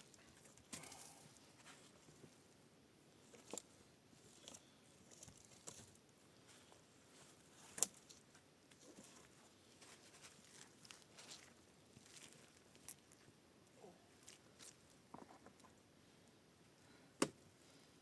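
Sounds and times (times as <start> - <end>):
small clicks and crackles: 7.7 - 15.8.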